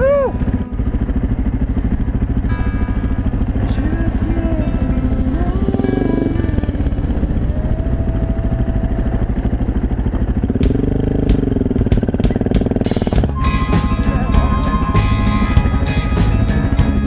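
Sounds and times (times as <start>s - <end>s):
music: 0.0s - 7.5s, 10.6s - 17.0s
motorcycle engine running: 0.0s - 17.0s
sharp clicks and clatter: 9.8s - 13.2s.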